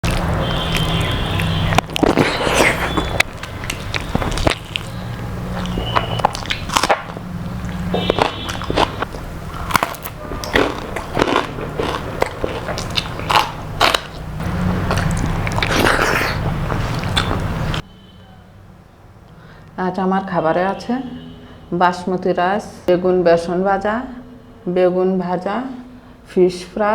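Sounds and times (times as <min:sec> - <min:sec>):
person chewing crispy food: 0:00.0 - 0:17.8.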